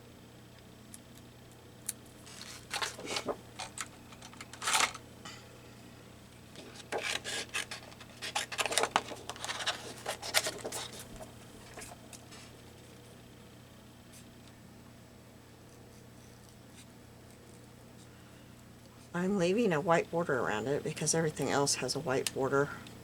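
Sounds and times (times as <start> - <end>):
scissors snipping paper: 6.7 - 11.1.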